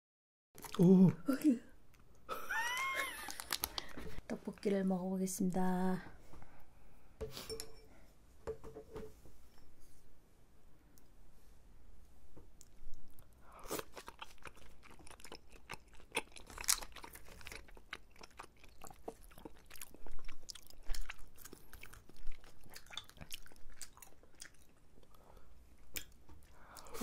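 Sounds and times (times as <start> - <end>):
people chewing crisp food: 0.6 - 1.1, 1.9 - 4.2, 12.5 - 27.0.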